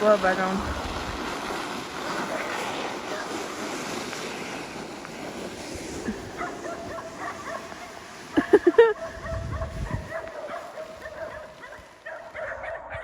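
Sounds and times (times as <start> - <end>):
dog barking sharply: 6.4 - 8.0, 9.0 - 13.0.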